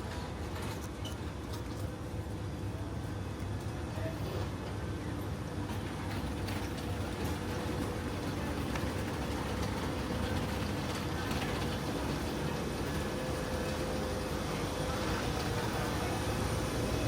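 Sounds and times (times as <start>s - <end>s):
steady rumble and hiss: 0.0s - 17.0s
mid-pitched hum: 7.2s - 17.0s.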